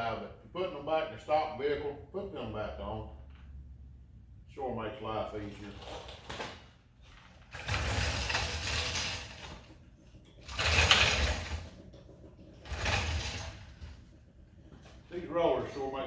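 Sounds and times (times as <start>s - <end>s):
mechanical rattling and clattering: 7.5s - 14.1s.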